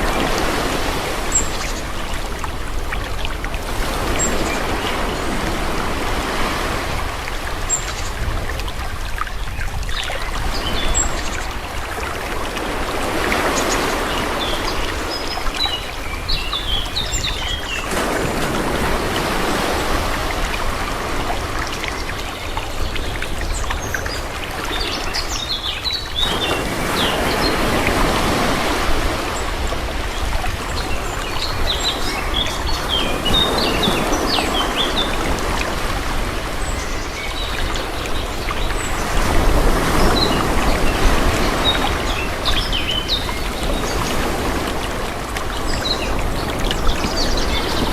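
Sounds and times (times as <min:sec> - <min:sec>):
sea waves washing: 0:00.0 - 0:47.9
small birds chirping: 0:13.4 - 0:17.9.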